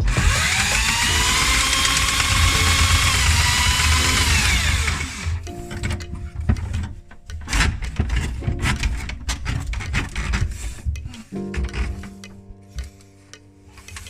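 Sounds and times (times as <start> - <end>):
power tool motor whining: 0.0 - 5.5
music-like tones: 0.0 - 14.0.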